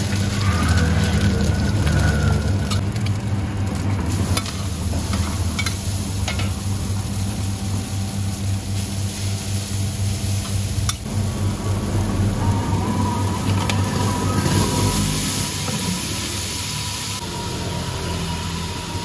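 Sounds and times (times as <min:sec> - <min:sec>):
food sizzling on a griddle: 0:04.0 - 0:18.6.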